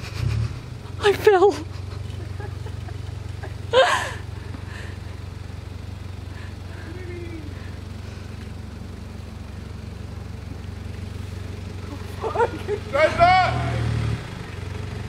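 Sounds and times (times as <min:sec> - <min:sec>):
engine running at low revs: 0:00.0 - 0:15.0
loud shout: 0:12.9 - 0:14.0.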